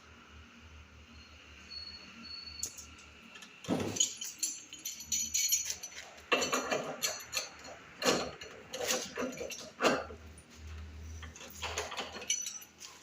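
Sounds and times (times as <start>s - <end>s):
hard objects clinking: 3.7s - 10.1s.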